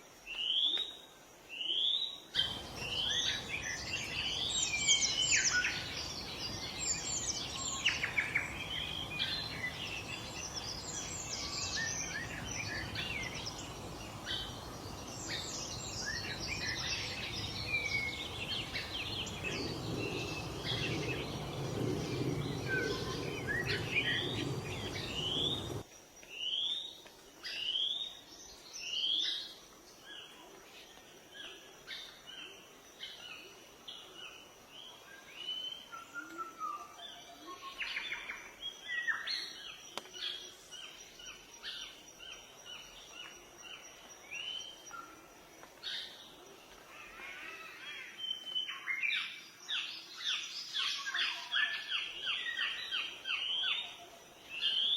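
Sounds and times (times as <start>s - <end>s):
birds singing: 1.7s - 25.9s
rising whistled bird notes: 2.4s - 25.8s.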